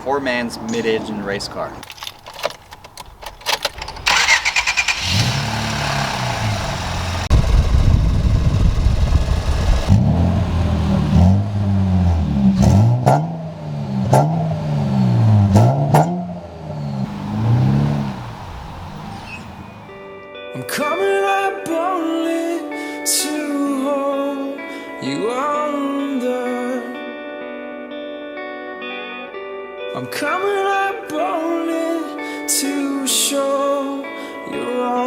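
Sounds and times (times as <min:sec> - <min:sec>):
car engine starting and revving: 0:03.0 - 0:20.2.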